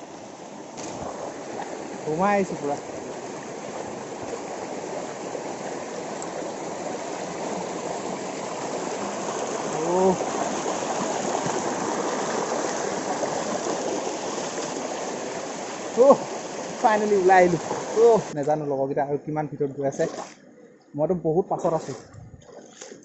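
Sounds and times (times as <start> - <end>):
river water rushing: 0.0 - 18.4.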